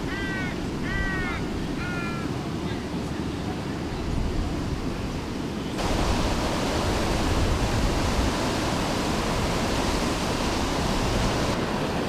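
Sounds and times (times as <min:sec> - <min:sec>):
rushing whitewater: 0:05.8 - 0:12.0.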